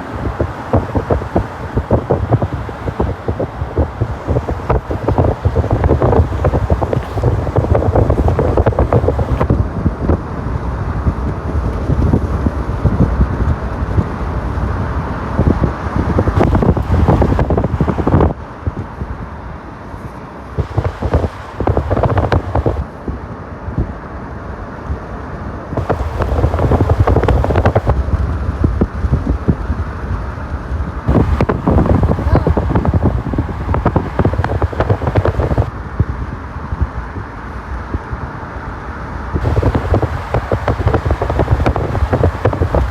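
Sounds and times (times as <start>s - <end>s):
wind buffeting microphone: 0.0s - 24.1s, 25.7s - 38.4s, 39.2s - 42.9s.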